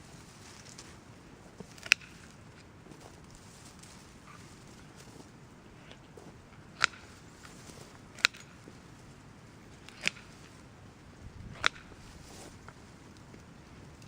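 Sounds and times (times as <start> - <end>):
pruning cuts snapping woody stems: 1.6 - 2.7, 6.6 - 8.7, 9.8 - 10.5, 11.4 - 14.0.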